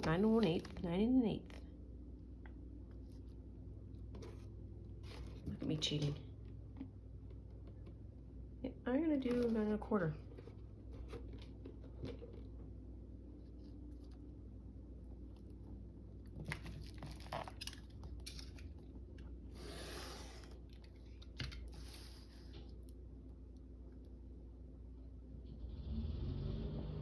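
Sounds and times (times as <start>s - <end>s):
paper rustling: 0.0s - 1.6s.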